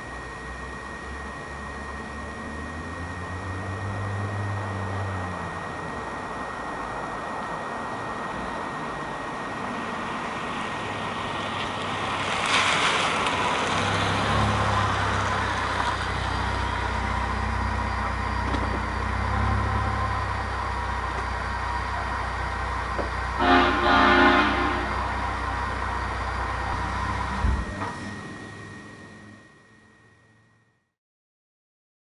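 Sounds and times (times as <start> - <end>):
car exhaust drone: 0.0 - 30.9
car horn: 23.4 - 25.3.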